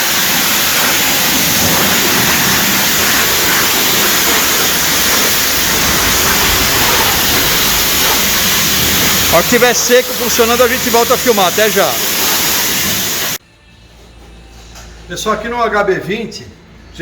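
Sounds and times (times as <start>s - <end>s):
water jet spraying: 0.0s - 13.4s.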